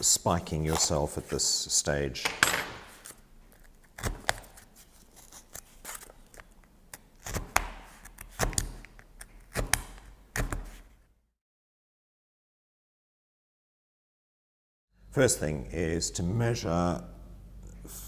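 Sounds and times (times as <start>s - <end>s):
tool punching through cardboard: 7.3s - 8.8s, 9.5s - 10.8s.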